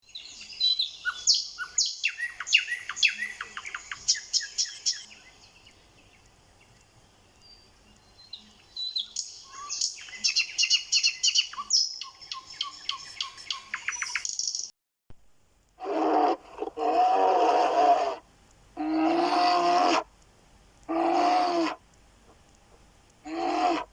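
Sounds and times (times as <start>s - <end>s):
songbird chirping and trilling: 0.0s - 14.7s.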